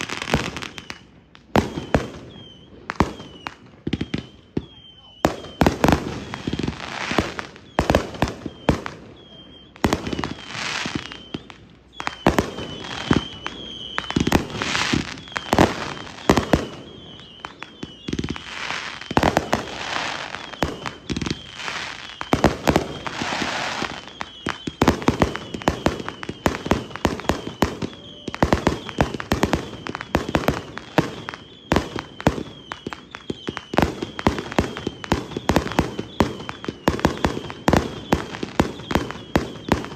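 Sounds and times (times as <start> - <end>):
firework bangs: 0.0 - 39.9
firework crackling: 0.0 - 39.9.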